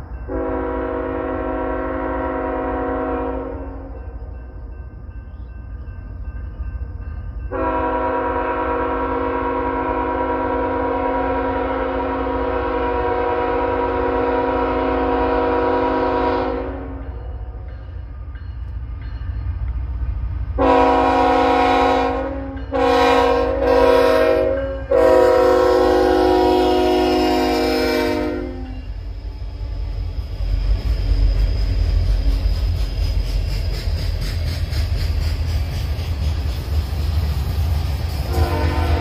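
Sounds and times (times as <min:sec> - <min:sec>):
diesel locomotives rumbling: 0:00.0 - 0:39.0
locomotive air horn blasts: 0:00.3 - 0:03.9, 0:07.5 - 0:17.2, 0:20.6 - 0:29.0, 0:38.2 - 0:39.0.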